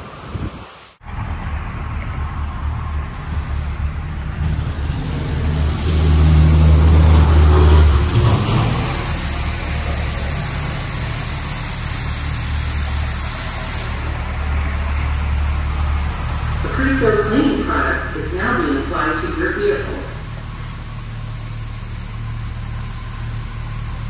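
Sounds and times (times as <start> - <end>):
steady hiss: 0.0 - 1.0, 5.8 - 24.0
car engine running at low speed: 1.0 - 24.0.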